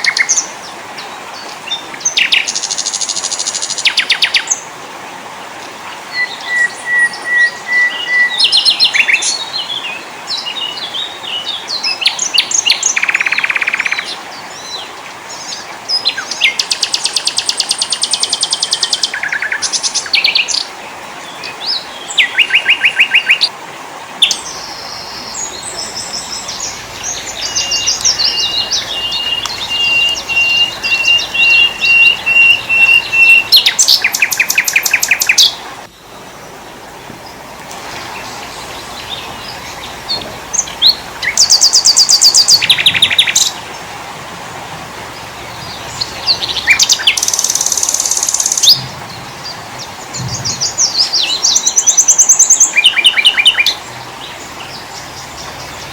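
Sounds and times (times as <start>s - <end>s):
songbirds singing and chirping: 0.0s - 4.8s, 5.4s - 55.9s
steady hiss: 23.4s - 52.8s.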